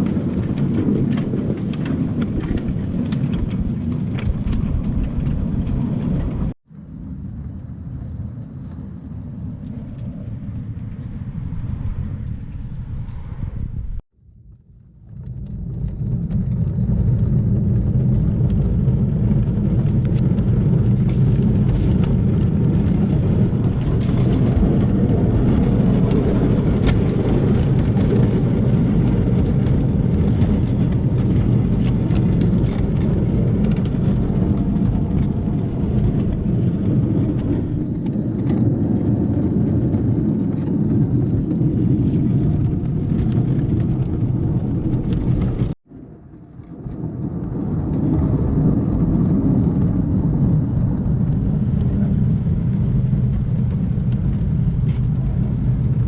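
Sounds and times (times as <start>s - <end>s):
miniature train rumble: 0.0s - 6.5s, 15.8s - 45.8s.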